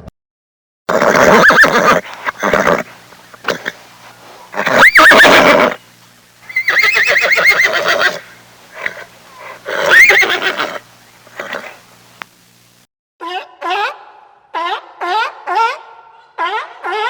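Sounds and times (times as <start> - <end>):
horse whinnying: 0.9 - 3.8, 4.5 - 5.8, 6.5 - 11.8.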